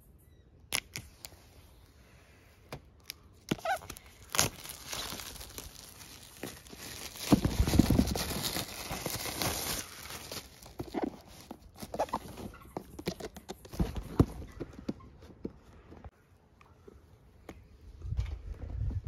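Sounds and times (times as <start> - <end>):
plastic wrap crinkling: 3.0 - 13.0.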